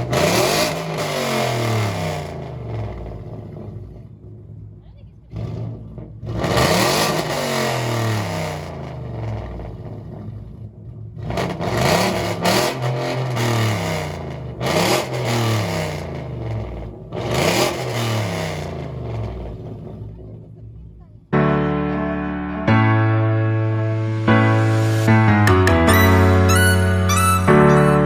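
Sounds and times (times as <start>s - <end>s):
car engine revving: 0.0s - 21.3s.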